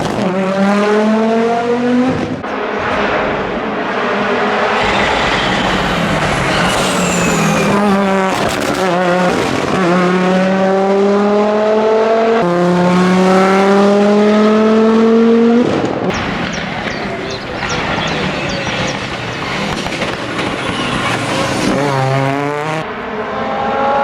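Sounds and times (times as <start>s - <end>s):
rally car engine revving: 0.0s - 24.0s
turbo whistle: 4.8s - 8.4s.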